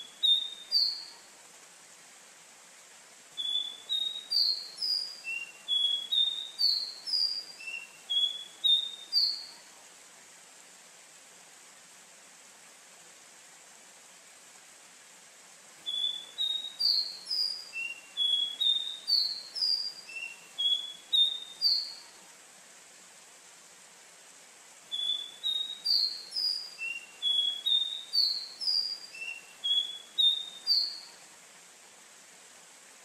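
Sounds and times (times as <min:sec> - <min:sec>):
bird singing: 0:00.0 - 0:01.1, 0:03.4 - 0:09.5, 0:15.8 - 0:22.1, 0:24.9 - 0:31.2.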